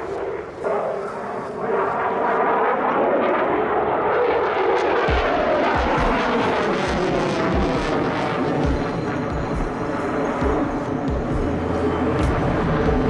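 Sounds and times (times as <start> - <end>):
jet engine roar: 0.0 - 13.0
low thumps: 10.4 - 13.0.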